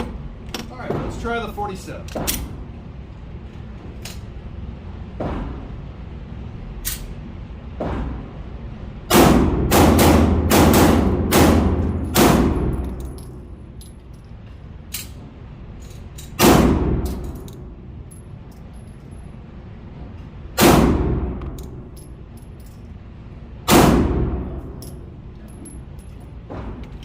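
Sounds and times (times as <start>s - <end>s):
pistol shots: 9.1s - 12.8s, 20.6s - 21.5s, 23.7s - 24.6s.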